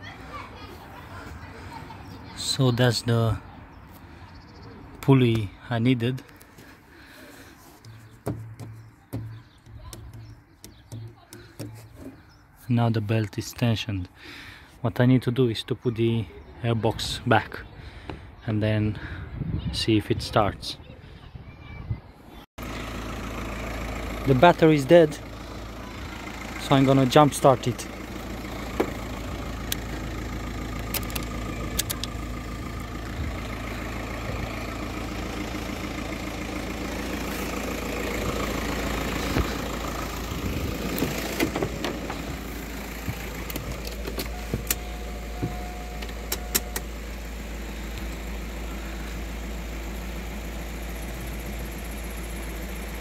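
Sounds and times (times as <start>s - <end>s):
car engine idling: 22.6s - 53.0s
car door opening: 40.7s - 47.0s.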